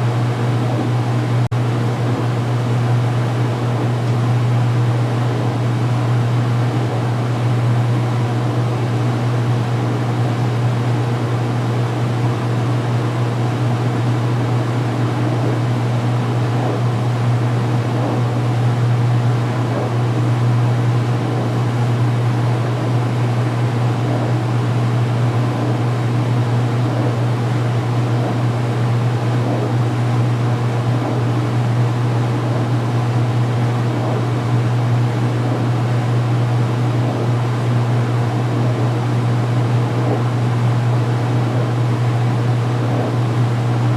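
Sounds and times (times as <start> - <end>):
washing machine spinning hum: 0.0 - 43.9.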